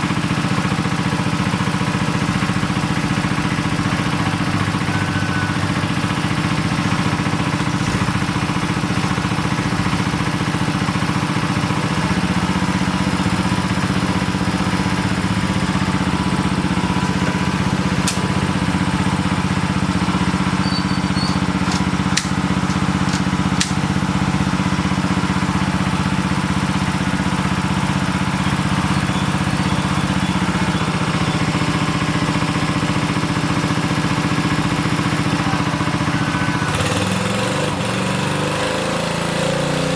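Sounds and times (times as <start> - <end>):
engine running steadily: 0.0 - 39.9
sharp clicks: 21.2 - 23.9.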